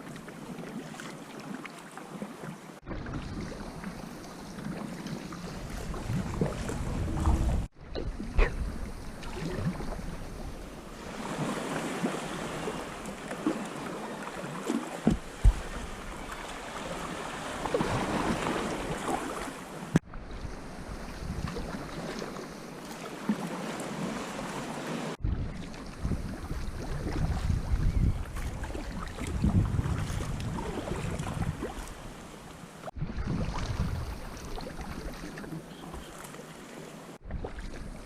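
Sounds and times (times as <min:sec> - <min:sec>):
paddle splashing through water: 0:00.0 - 0:38.0
waves lapping: 0:00.0 - 0:38.0
wind buffeting microphone: 0:05.2 - 0:11.2, 0:20.0 - 0:22.0, 0:25.2 - 0:32.1, 0:32.9 - 0:35.2.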